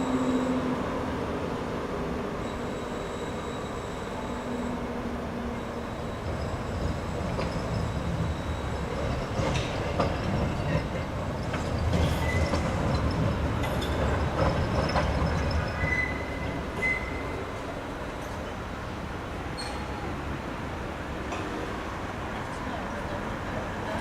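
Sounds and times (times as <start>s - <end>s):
high-pitched wheel squeal: 0.0s - 0.9s, 2.4s - 9.4s, 12.0s - 12.8s, 15.2s - 17.5s, 19.6s - 20.1s
tram rumbling on rails: 0.0s - 24.0s.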